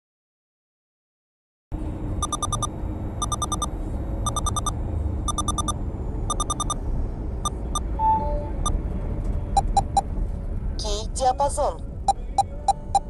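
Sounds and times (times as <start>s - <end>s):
road rumble: 1.7s - 13.0s
radar detector beeping: 2.2s - 6.8s, 9.6s - 10.0s.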